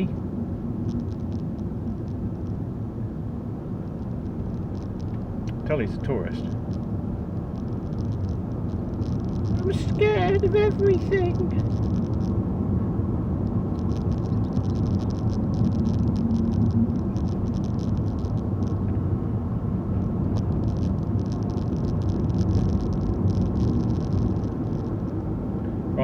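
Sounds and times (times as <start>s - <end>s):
engine and tyre rumble: 0.0s - 26.0s
light rattling clicks: 3.8s - 5.6s, 13.4s - 19.0s.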